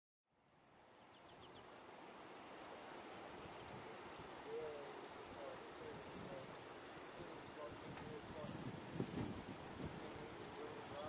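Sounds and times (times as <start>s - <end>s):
lower bird call: 4.4s - 5.8s, 9.9s - 11.0s
high bird chirps: 4.5s - 5.5s, 9.9s - 11.0s.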